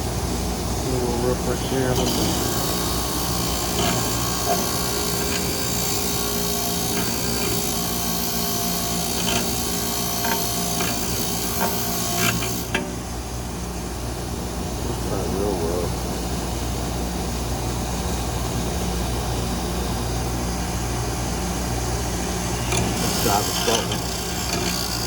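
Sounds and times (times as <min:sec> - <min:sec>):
wire brush scrubbing metal: 0:01.6 - 0:12.9, 0:22.4 - 0:25.0.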